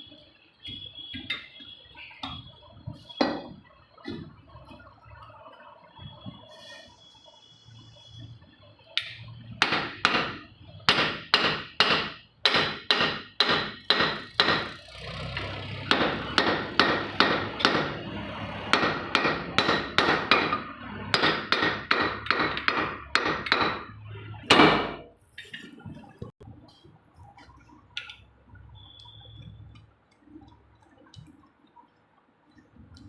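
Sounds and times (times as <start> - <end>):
hammer striking metal: 9.0 - 14.8, 15.9 - 18.0, 18.6 - 25.1.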